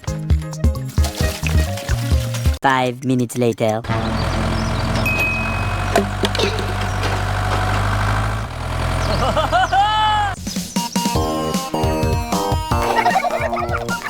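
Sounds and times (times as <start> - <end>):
small engine running: 3.9 - 10.4.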